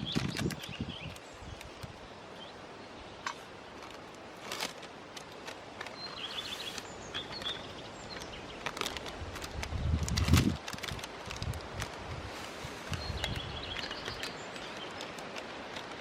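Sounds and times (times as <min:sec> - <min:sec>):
faint steady hiss: 0:00.0 - 0:16.0
bird chirps: 0:05.9 - 0:08.6, 0:12.9 - 0:15.1
small clicks and knocks: 0:12.9 - 0:16.0.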